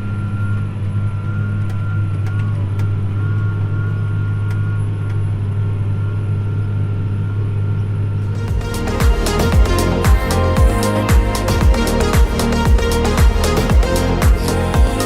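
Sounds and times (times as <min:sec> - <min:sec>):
faint high whine: 0:00.0 - 0:10.5.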